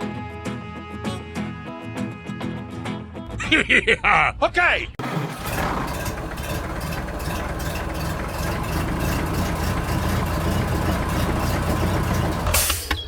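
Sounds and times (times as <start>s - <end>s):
motor running with rattle: 5.0s - 12.6s.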